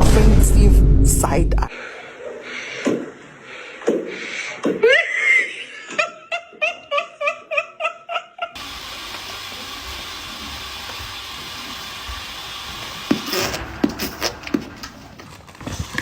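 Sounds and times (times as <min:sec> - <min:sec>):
low rumble: 0:00.0 - 0:01.7
background hiss: 0:08.6 - 0:15.2.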